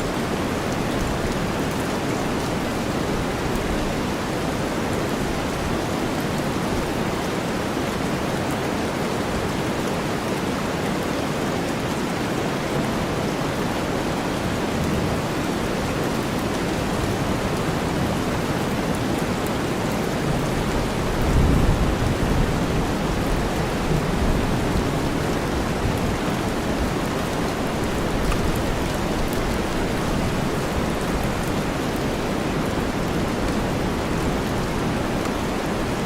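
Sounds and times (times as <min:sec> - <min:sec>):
low rumble of thunder: 0:20.8 - 0:25.0.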